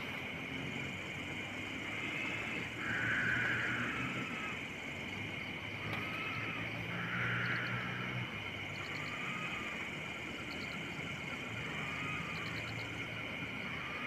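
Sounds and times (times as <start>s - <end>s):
insect high trill: 0.0s - 14.0s
second insect call: 0.0s - 14.0s.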